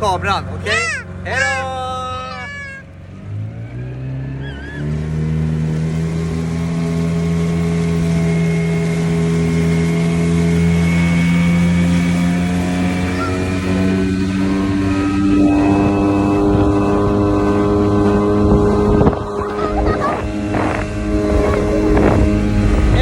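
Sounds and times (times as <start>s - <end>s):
outboard motor revving: 0.0s - 23.0s
water rushing: 0.0s - 23.0s
wind rushing: 20.2s - 23.0s.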